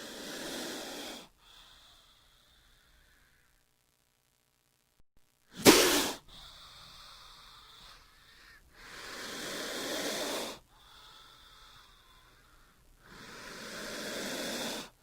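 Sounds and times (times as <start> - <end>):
snake hissing: 0.0 - 3.2, 5.6 - 8.0, 8.8 - 12.4, 13.0 - 15.0.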